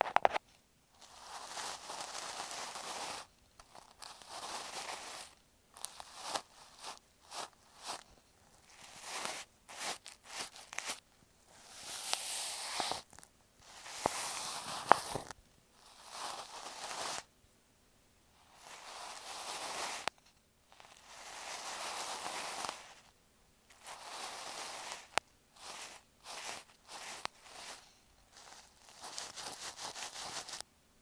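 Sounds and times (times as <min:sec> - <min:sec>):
soft brushing swishes on microphone: 0:06.0 - 0:17.3, 0:20.9 - 0:23.1, 0:23.7 - 0:30.6.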